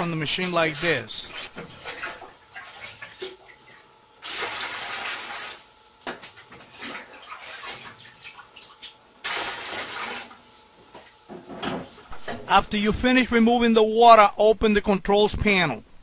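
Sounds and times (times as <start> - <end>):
water pouring: 0.7 - 5.6, 6.7 - 10.4
water splashing and dripping: 1.8 - 10.4.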